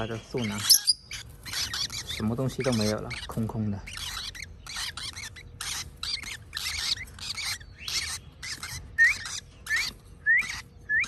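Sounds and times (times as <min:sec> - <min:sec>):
baby parrots rasping begging calls: 0:00.0 - 0:11.0.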